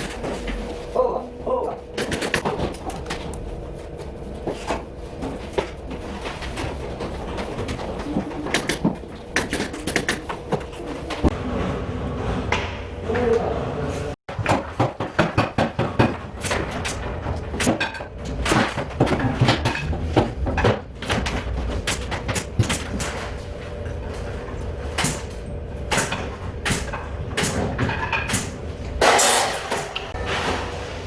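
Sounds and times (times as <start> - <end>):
knocks and clatter of hand work: 14.3 - 30.6.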